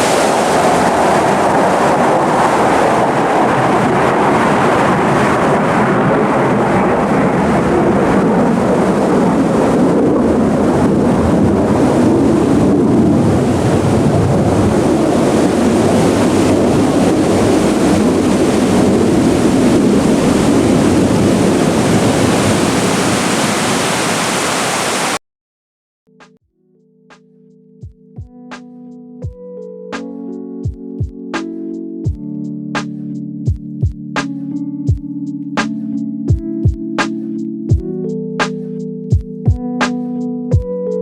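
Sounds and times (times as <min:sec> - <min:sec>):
fast-flowing water rushing: 0:00.0 - 0:05.3, 0:11.8 - 0:25.2.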